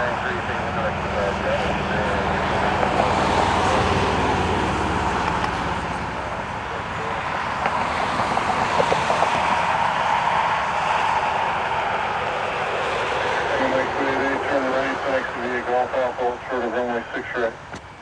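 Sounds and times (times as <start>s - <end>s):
engine and traffic rushing: 0.0s - 18.0s.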